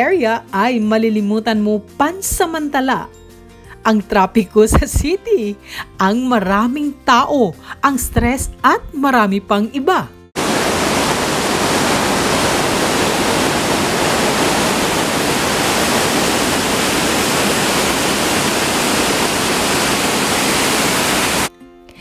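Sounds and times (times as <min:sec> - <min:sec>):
fast-flowing stream rushing: 0:10.4 - 0:21.5.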